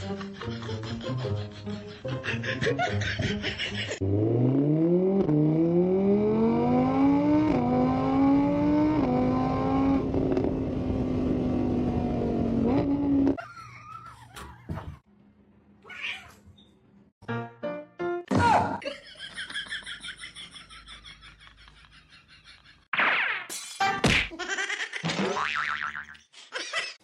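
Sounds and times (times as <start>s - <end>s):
car engine accelerating through gears: 4.0s - 13.4s.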